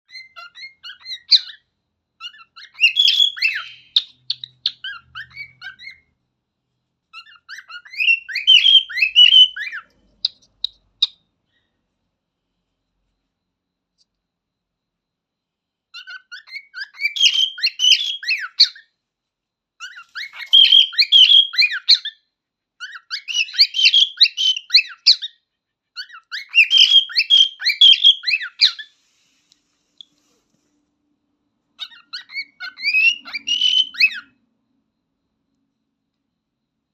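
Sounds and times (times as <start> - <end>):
cockatiel whistling: 0.1 - 1.6, 2.2 - 6.1, 7.1 - 11.2, 15.9 - 18.8, 19.8 - 22.2, 22.8 - 25.4, 26.0 - 29.0, 31.8 - 34.3.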